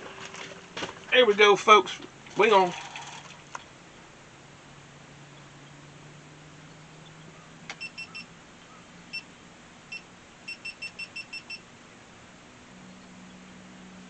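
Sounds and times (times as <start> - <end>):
high electronic beeps: 7.8 - 8.3, 9.9 - 11.6.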